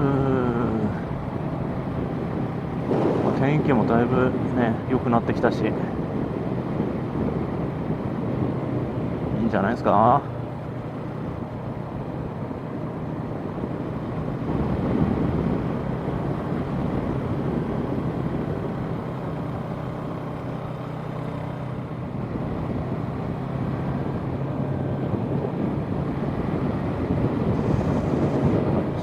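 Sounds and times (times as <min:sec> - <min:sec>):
wind rushing: 0:00.0 - 0:04.8, 0:23.9 - 0:29.0
motorcycle engine running: 0:00.0 - 0:04.9, 0:10.0 - 0:29.0
road noise: 0:00.0 - 0:29.0.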